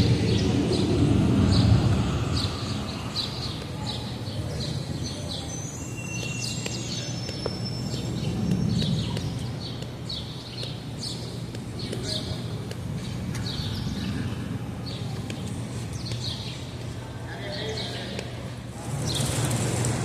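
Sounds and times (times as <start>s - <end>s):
low outdoor rumble: 0.0s - 5.7s
thin whistled bird notes: 5.0s - 9.8s.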